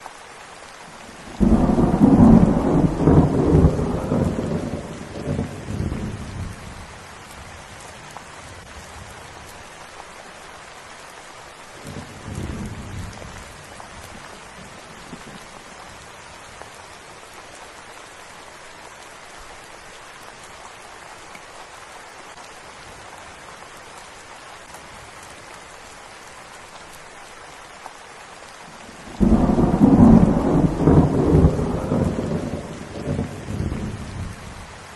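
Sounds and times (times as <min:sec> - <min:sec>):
steady rain falling: 0:00.0 - 0:34.9
thunder rumbling: 0:01.3 - 0:06.8, 0:29.1 - 0:34.7.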